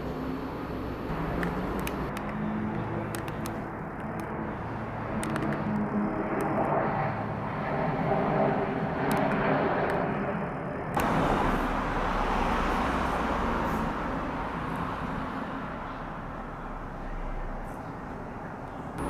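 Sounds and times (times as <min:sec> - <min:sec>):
jet engine noise: 0:00.0 - 0:19.0.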